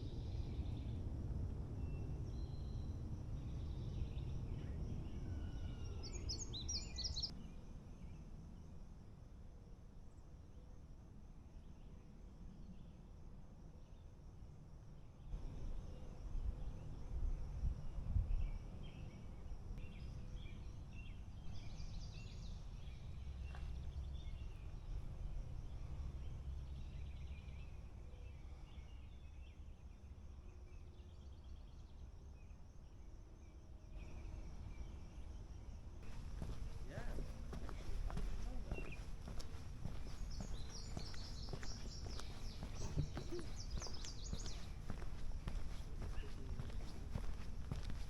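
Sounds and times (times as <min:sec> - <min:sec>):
birds singing: 0:01.9 - 0:07.3, 0:34.0 - 0:48.0
insects trilling: 0:34.4 - 0:48.0.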